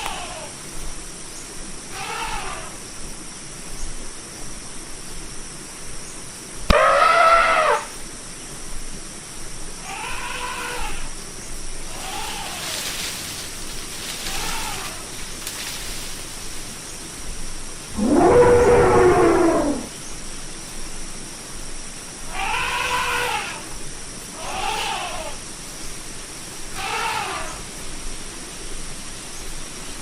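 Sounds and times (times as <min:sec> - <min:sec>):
elephant trumpeting: 0:01.9 - 0:02.7, 0:06.7 - 0:07.9, 0:11.9 - 0:12.9, 0:14.2 - 0:15.1, 0:18.0 - 0:19.9, 0:22.3 - 0:23.6, 0:24.4 - 0:25.4, 0:26.7 - 0:27.6.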